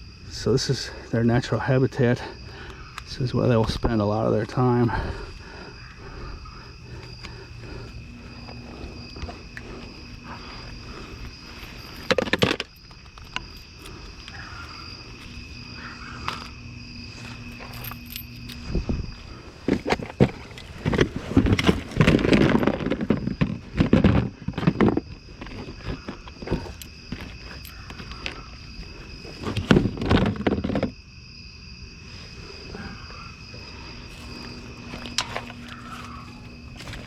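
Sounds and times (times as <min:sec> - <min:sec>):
night insects droning: 0:00.0 - 0:37.0
rummaging and rustling through trash: 0:06.9 - 0:16.5, 0:17.1 - 0:31.0, 0:34.0 - 0:37.0.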